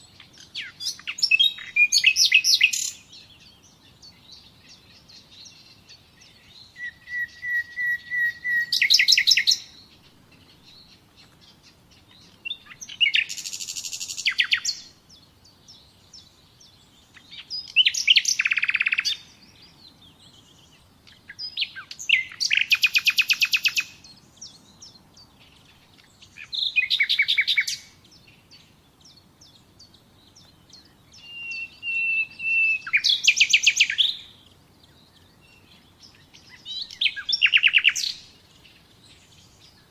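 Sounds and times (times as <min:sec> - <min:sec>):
songbird trilling: 0:00.0 - 0:39.9.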